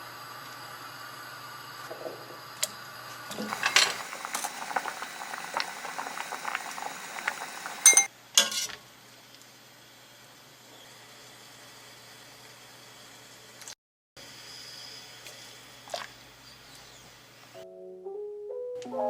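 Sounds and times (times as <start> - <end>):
liquid boiling and bubbling: 0.2 - 8.1, 15.1 - 16.6
utensil clinking against cookware: 3.3 - 8.7.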